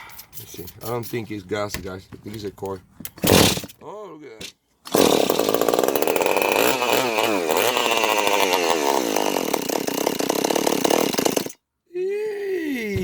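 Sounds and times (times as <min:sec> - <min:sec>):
chainsaw starting and revving: 0:03.2 - 0:03.7, 0:04.9 - 0:11.6.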